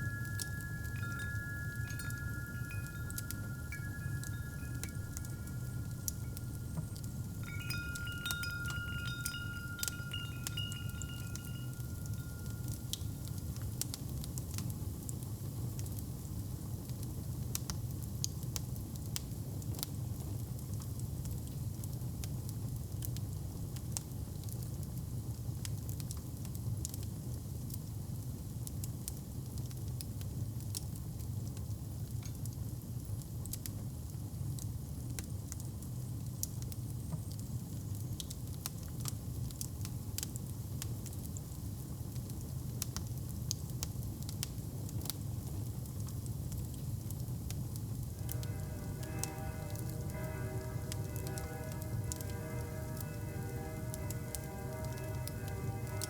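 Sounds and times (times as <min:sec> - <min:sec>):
wood fire crackling: 0:00.0 - 0:14.7, 0:42.8 - 0:56.0.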